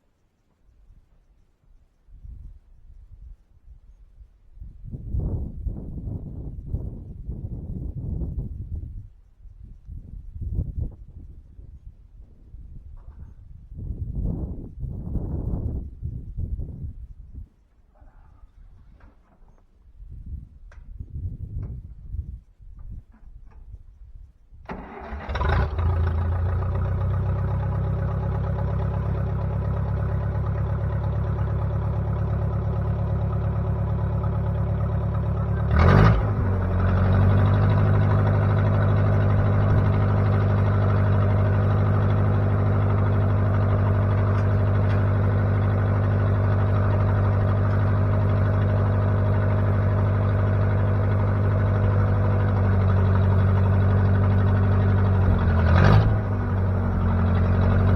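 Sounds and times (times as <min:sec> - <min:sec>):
backhoe engine running: 0:24.7 - 0:57.9.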